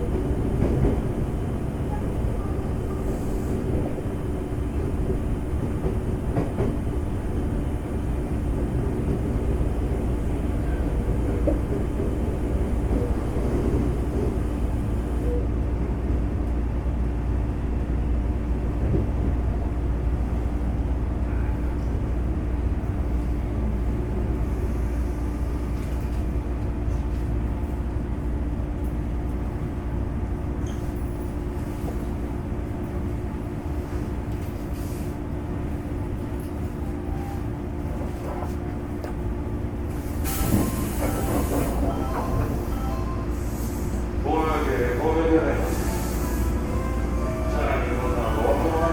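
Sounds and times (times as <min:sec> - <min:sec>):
air conditioning hum: 0:37.8 - 0:48.9.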